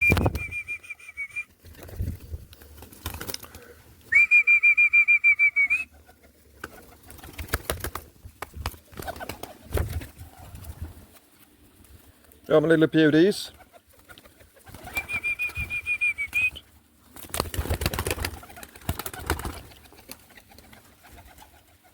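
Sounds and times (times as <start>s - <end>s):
whistle trilling: 0.0s - 1.5s, 4.1s - 5.9s, 14.9s - 16.6s.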